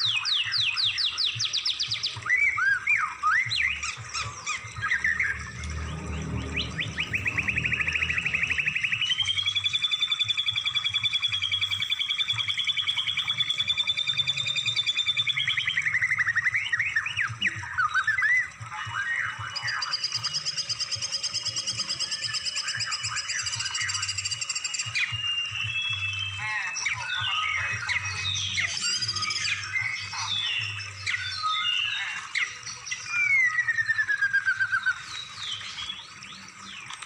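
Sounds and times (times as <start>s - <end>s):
bird chirps and whistles: 0.0s - 36.9s.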